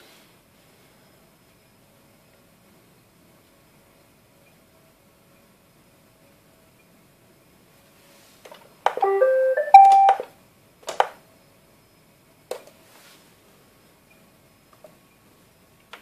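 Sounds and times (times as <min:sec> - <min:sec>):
robot vacuum electronic tune: 0:09.0 - 0:10.2.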